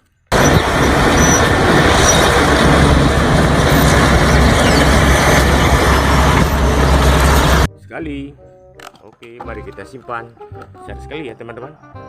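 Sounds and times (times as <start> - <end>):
heavy vehicle rumbling: 0.3 - 7.7.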